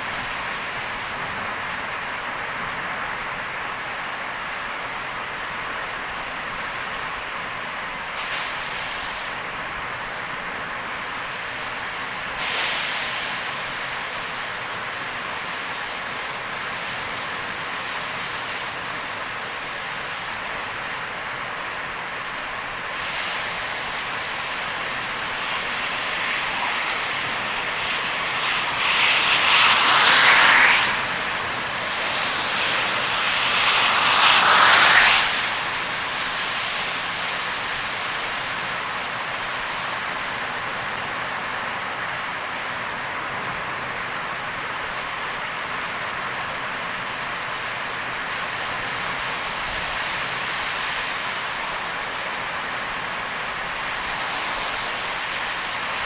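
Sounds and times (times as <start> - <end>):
tyres on wet road: 0.0 - 56.0
heavy rain hissing: 8.0 - 41.9, 47.6 - 56.0.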